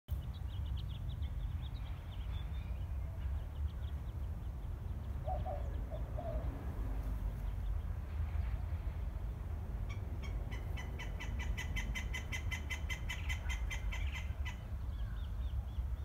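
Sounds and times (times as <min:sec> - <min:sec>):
small birds chirping: 0:00.1 - 0:16.0
lower bird calls: 0:00.2 - 0:08.6.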